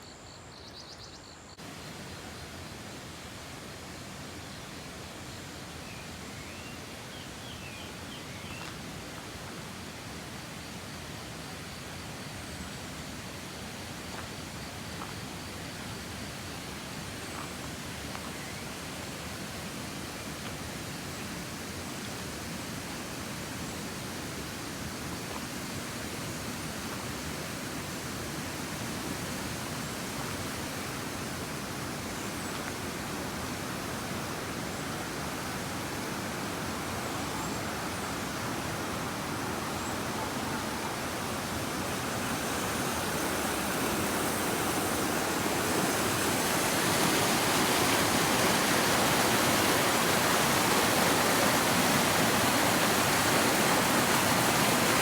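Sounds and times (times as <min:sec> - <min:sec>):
mountain stream rushing: 0:01.6 - 0:55.0.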